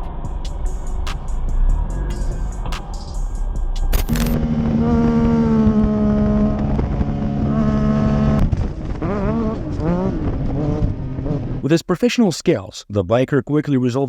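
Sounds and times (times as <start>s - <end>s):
steady tone: 0.0s - 7.6s
road vehicle noise: 0.0s - 11.7s.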